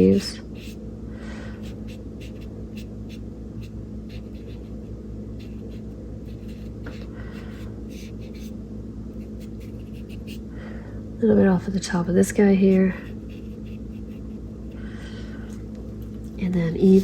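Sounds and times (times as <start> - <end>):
steady low hum: 0.0 - 17.0
paintbrush scratching on paper: 0.1 - 0.8, 1.6 - 8.6, 9.2 - 10.4, 12.4 - 14.8.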